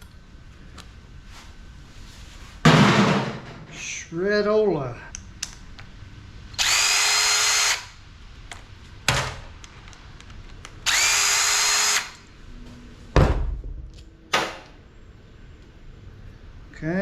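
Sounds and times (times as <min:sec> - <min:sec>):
power tool motor spinning: 0:06.6 - 0:08.0, 0:10.8 - 0:12.2.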